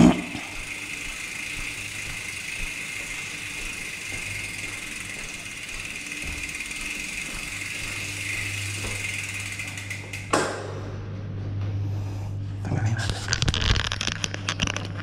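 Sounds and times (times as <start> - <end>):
bicycle freewheel ticking: 0.0 - 10.5.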